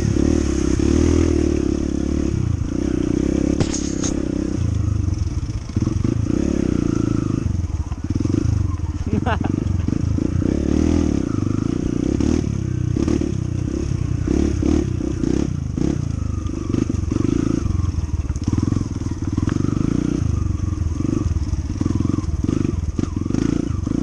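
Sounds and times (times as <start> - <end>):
motorcycle engine droning: 0.0 - 24.0.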